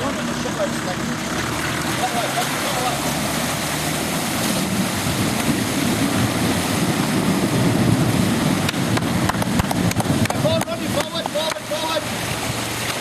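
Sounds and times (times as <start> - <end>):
vehicle engine: 0.0 - 13.0
water rushing and splashing: 0.0 - 13.0
sharp knocks: 8.7 - 11.6.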